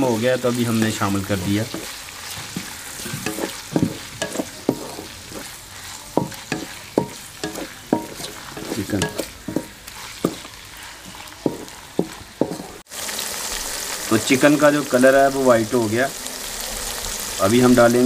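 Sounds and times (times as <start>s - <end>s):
meat and onion sizzling in oil: 0.0s - 18.0s
spatula knocking and scraping pan: 0.7s - 12.8s.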